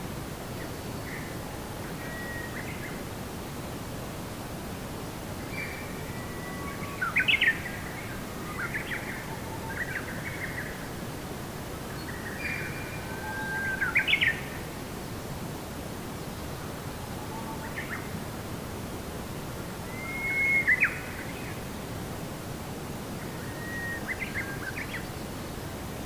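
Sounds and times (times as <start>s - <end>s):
steady background hiss: 0.0s - 26.0s
songbird singing: 5.4s - 11.0s, 11.8s - 14.7s, 19.8s - 21.7s, 23.2s - 25.7s.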